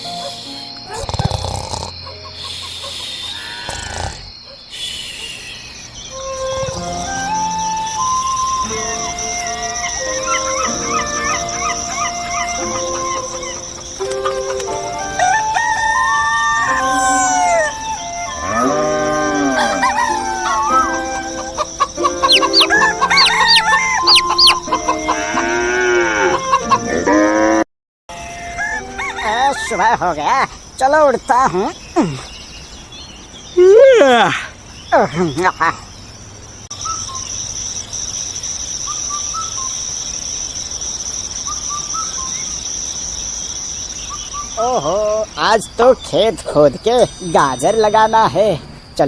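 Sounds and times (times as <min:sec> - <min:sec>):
high bird chirps: 0:04.7 - 0:25.6, 0:36.7 - 0:48.4
chickens clucking: 0:08.6 - 0:27.0
rooster crowing: 0:15.0 - 0:26.7, 0:28.1 - 0:30.0.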